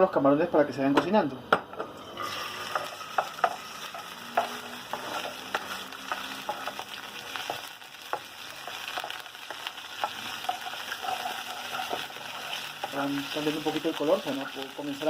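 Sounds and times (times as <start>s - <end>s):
spoon scraping a wok: 2.0s - 13.7s
shrimp sizzling in hot oil: 2.0s - 15.0s.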